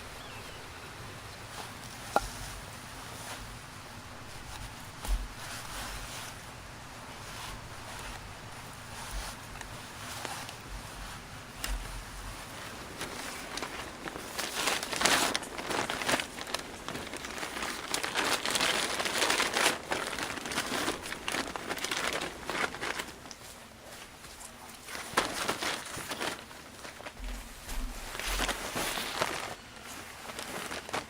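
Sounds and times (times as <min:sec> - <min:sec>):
crinkling and rustling: 0:00.0 - 0:31.0
sharp crackles: 0:24.4 - 0:31.0.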